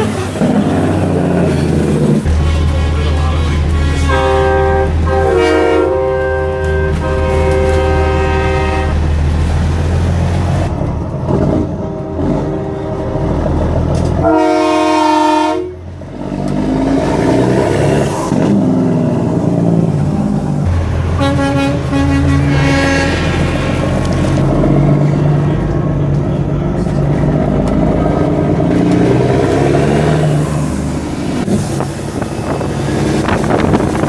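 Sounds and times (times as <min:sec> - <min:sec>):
truck air horns blasting: 0:00.0 - 0:10.7, 0:11.6 - 0:16.0, 0:20.6 - 0:25.5, 0:28.6 - 0:34.0
diesel engines rumbling: 0:00.0 - 0:34.0.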